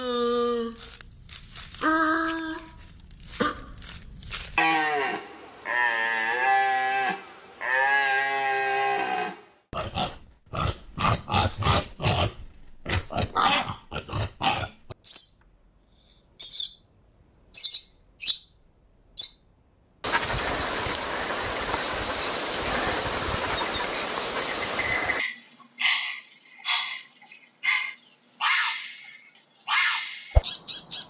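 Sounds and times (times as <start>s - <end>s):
high bird chirps: 16.4s - 16.8s, 17.5s - 18.6s
steady hiss: 20.1s - 25.2s.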